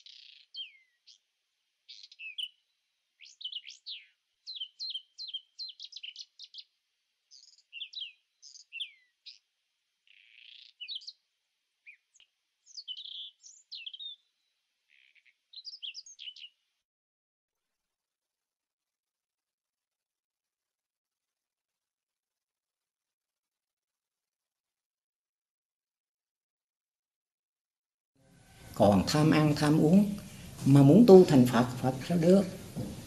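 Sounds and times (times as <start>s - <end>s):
small bird singing: 0.0s - 16.7s.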